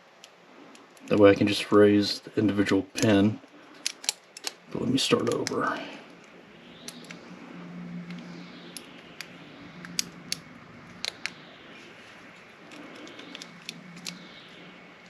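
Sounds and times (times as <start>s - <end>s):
low steady hum: 0.0s - 15.0s
metal clicks of lock picking: 3.8s - 4.6s, 12.7s - 14.2s.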